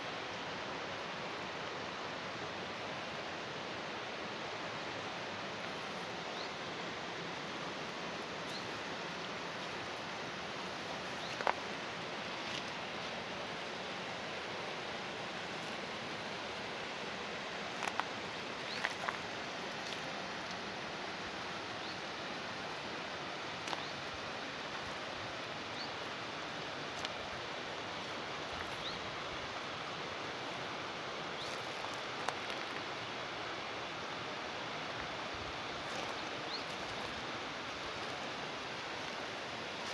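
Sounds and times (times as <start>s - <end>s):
water flowing in a channel: 0.0s - 39.9s.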